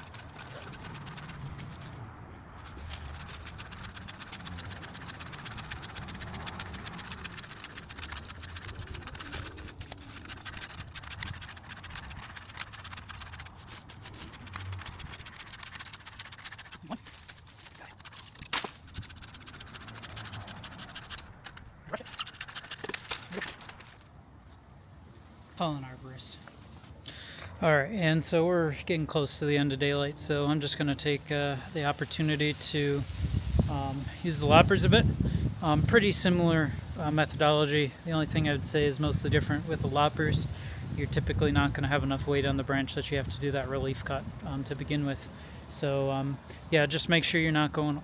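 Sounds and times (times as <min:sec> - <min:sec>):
saw rasping through branch: 0:00.0 - 0:24.0.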